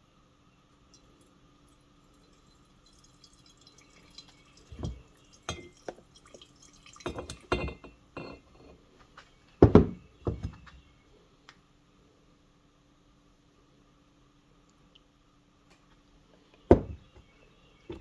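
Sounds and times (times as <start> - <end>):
gasoline pouring into glass: 0.9 - 8.7.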